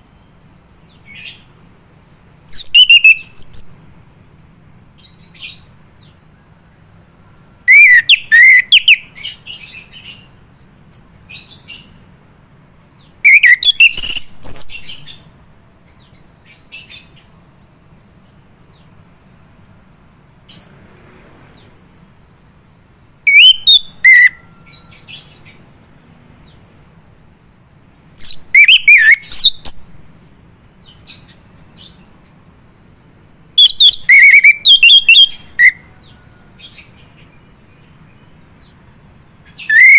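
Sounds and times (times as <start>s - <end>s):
low faint hum: 0.0s - 39.9s
thrush singing whistled notes: 2.5s - 3.8s, 7.7s - 10.0s, 13.2s - 15.3s, 23.3s - 25.6s, 28.2s - 29.9s, 33.6s - 36.1s, 39.6s - 39.9s.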